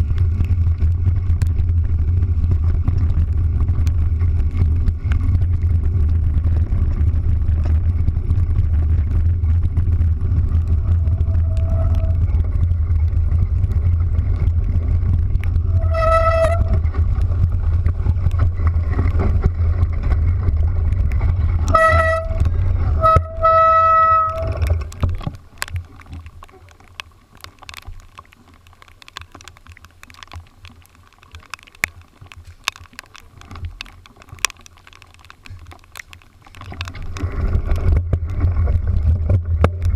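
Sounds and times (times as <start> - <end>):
light ticks: 0.0 - 23.5, 24.2 - 39.9
vehicle engine low rumble: 0.0 - 39.9
horn honking: 21.7 - 22.4, 23.0 - 24.6.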